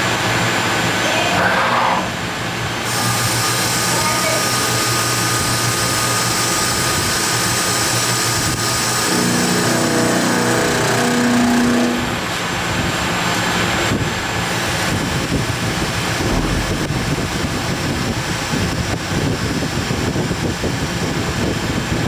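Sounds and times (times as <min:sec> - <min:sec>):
factory machinery whining: 0:00.0 - 0:21.9
low droning hum: 0:13.7 - 0:21.1.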